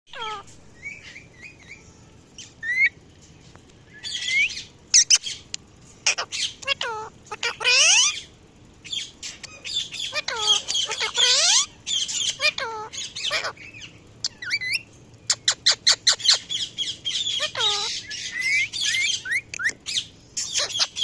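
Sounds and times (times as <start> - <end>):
parrot screeching: 0.1 - 0.4, 6.0 - 8.3, 9.6 - 19.5, 20.4 - 21.0
parrot chirping: 0.1 - 3.0, 3.9 - 21.0.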